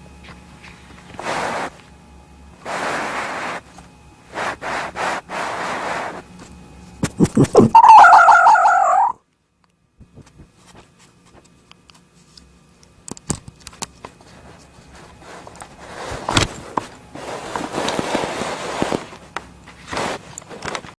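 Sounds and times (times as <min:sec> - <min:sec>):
rustling and scraping: 0:00.2 - 0:01.9, 0:02.6 - 0:07.8, 0:10.1 - 0:12.4, 0:13.9 - 0:21.0.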